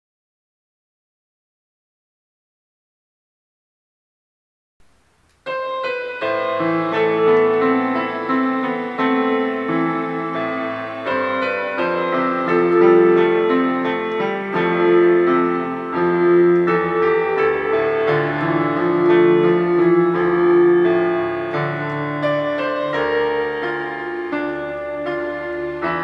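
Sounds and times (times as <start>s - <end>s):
gentle keyboard music: 5.3s - 26.0s.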